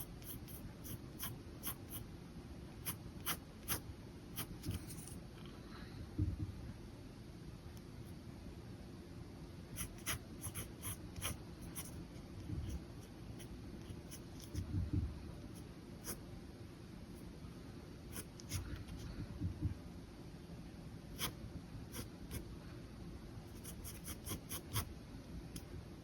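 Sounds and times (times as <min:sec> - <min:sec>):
pen scratching on paper: 0:00.0 - 0:02.0, 0:02.8 - 0:05.1, 0:09.8 - 0:14.7, 0:18.1 - 0:19.2, 0:21.2 - 0:22.4, 0:23.5 - 0:24.9.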